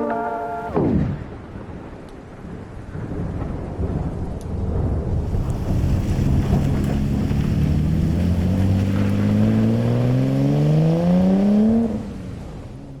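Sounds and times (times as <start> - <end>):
windy rumble: 0.7 - 13.0
car engine accelerating hard: 5.3 - 13.0.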